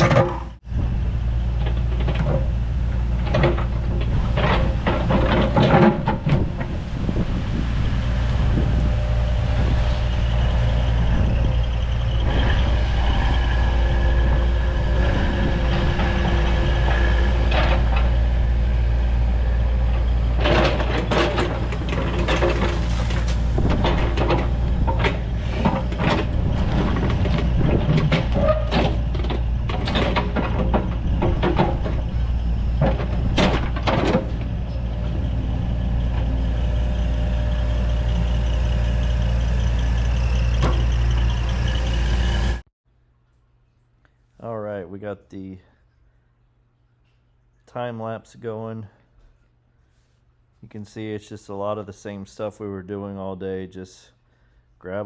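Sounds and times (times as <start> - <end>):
excavator diesel engine: 0.0 - 42.7
hydraulics working: 0.0 - 42.7
bucket knocking and scraping rock: 20.4 - 32.1.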